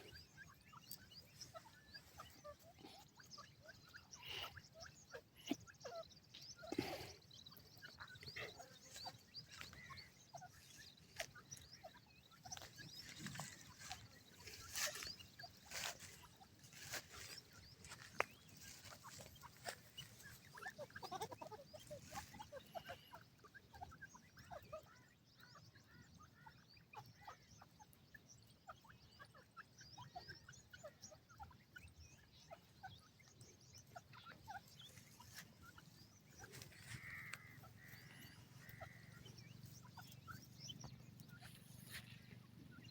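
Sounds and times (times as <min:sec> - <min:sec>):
chicks peeping: 0:00.0 - 0:42.9.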